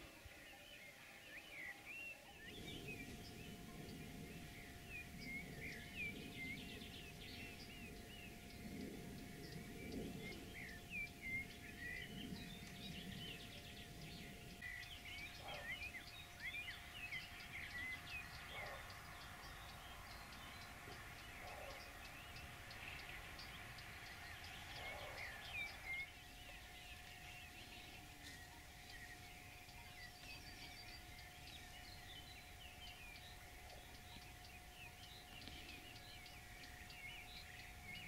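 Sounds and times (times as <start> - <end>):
faint steady tone: 0.0 - 38.0
songbirds singing: 0.0 - 38.0.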